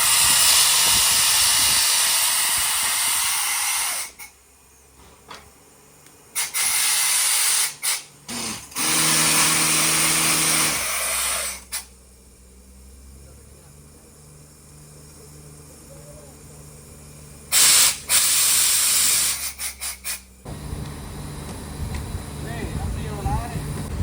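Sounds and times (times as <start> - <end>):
compressed air blasts hissing: 0.0 - 4.4, 6.3 - 12.0, 17.5 - 24.0
steady low hum: 18.8 - 24.0.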